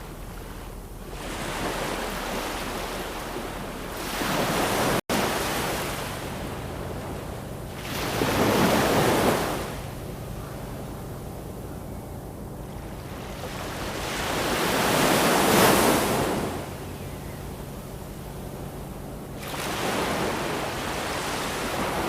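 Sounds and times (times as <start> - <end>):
ocean waves breaking on shore: 0.0 - 22.0.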